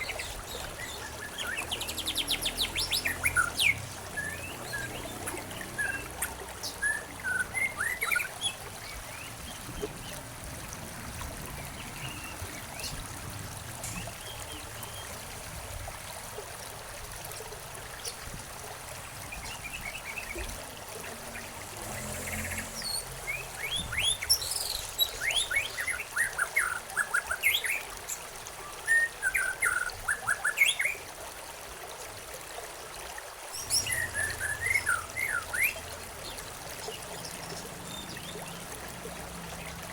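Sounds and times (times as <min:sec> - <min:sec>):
songbirds chirping: 0:00.0 - 0:10.3, 0:19.0 - 0:31.0, 0:33.6 - 0:39.9
stream water trickling: 0:00.0 - 0:39.9.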